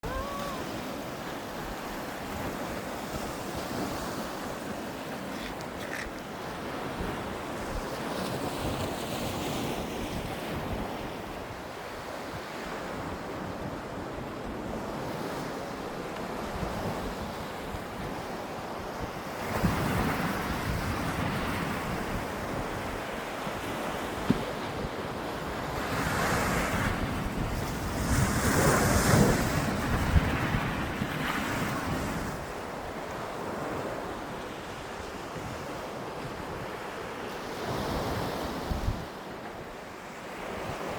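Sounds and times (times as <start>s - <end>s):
sea waves breaking on shore: 0.0s - 40.9s
wind buffeting microphone: 16.2s - 36.8s.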